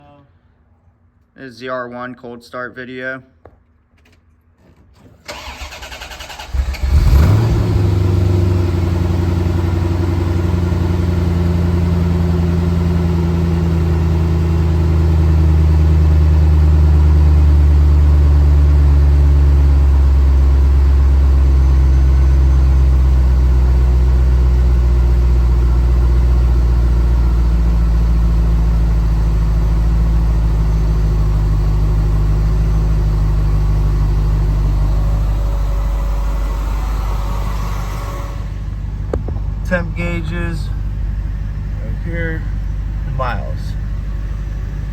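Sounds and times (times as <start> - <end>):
starter motor cranking: 5.2 - 7.5
car engine idling: 5.3 - 44.9.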